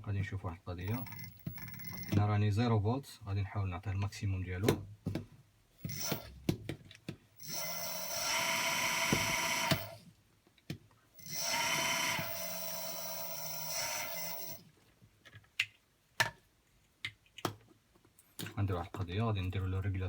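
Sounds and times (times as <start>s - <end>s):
electric motor whining: 7.4s - 10.0s, 11.2s - 14.6s.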